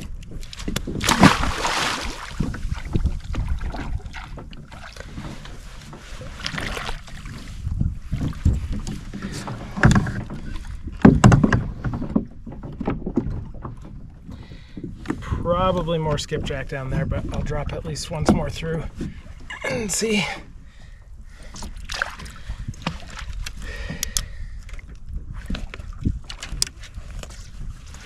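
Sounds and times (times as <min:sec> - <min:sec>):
water sloshing against kayak hull: 0:00.0 - 0:28.0
wind rumble on microphone: 0:00.0 - 0:28.0
knocks on boat: 0:08.3 - 0:14.0.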